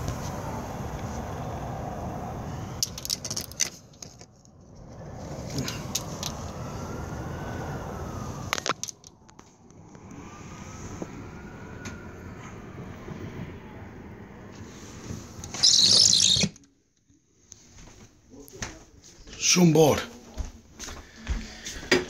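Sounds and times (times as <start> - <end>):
faint siren wailing: 0.0 - 3.9, 4.5 - 16.5
steady rumbling noise: 0.0 - 16.0.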